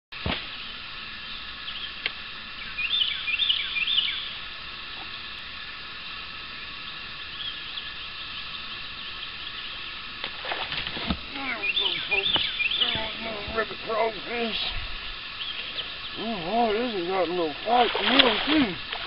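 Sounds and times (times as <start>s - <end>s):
steady outdoor hiss: 0.1s - 19.0s
bird whistling song: 2.6s - 4.3s, 11.5s - 13.1s.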